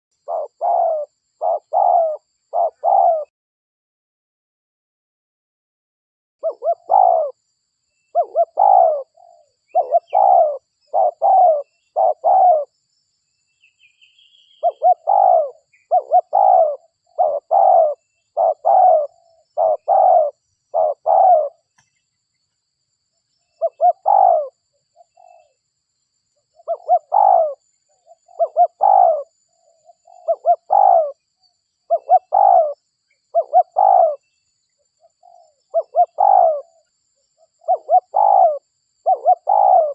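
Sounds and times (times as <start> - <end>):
dove cooing: 0.2 - 3.3, 6.4 - 7.4, 8.1 - 12.7, 14.5 - 21.8, 23.6 - 25.6, 26.5 - 31.2, 31.9 - 34.3, 35.0 - 39.9.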